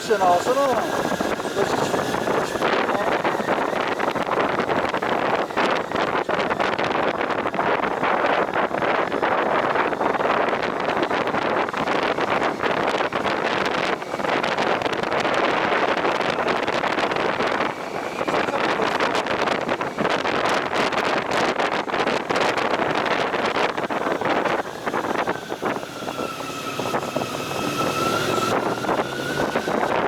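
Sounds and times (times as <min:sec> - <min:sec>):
wind rushing over microphone: 0:00.0 - 0:30.0.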